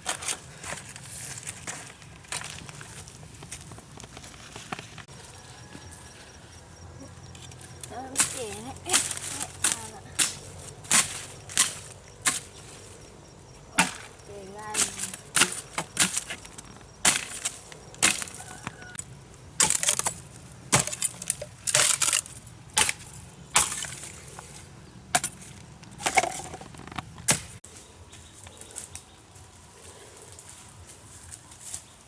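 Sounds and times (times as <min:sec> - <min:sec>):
sharp knocks and cracks: 0:08.2 - 0:12.9, 0:13.7 - 0:27.6.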